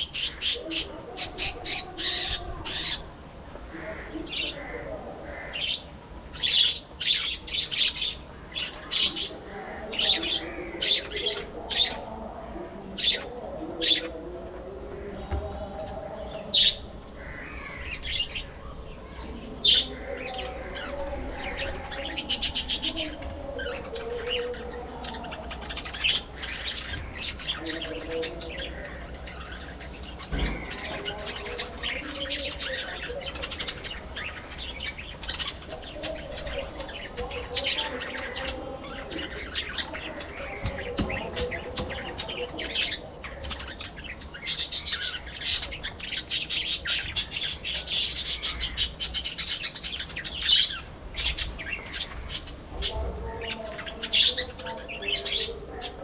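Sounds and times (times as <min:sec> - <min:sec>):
budgerigars chirping: 0:19.7 - 0:56.0.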